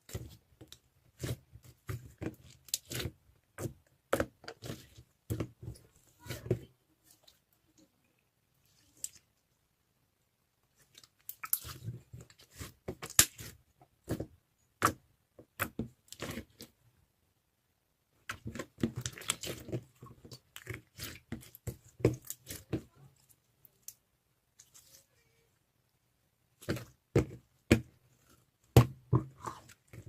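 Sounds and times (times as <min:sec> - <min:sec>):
slime clicking and squishing: 0:00.0 - 0:06.6, 0:10.8 - 0:16.7, 0:18.2 - 0:25.0.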